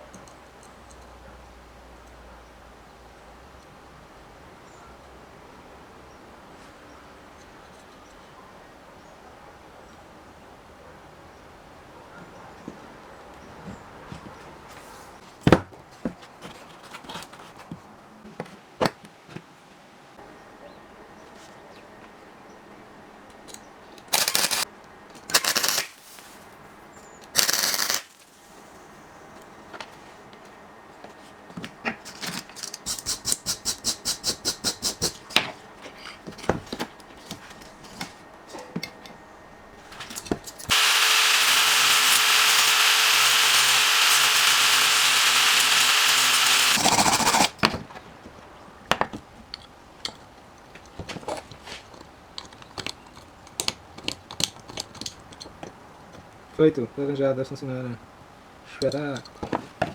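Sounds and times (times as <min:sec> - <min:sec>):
small power tool running: 0:24.2 - 0:24.6, 0:40.7 - 0:47.6.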